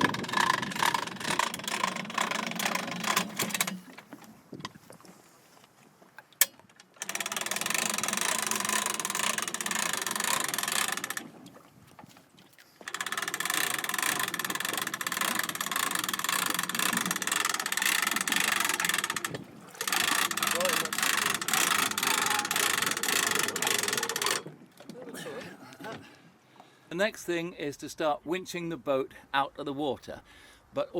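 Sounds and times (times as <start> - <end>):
electric winch whirring: 0.0 - 3.9, 7.0 - 11.3, 12.9 - 24.5
winch click: 6.4 - 11.2, 12.8 - 24.5.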